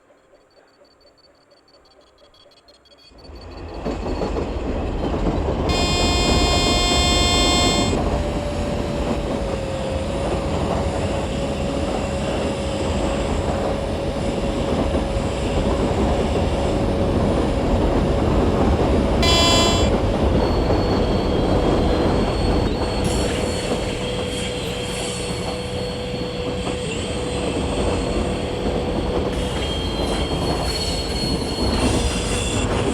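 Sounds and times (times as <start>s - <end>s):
trains rumbling past: 0.0s - 32.9s
train horn blasting: 5.7s - 8.6s, 18.5s - 22.4s.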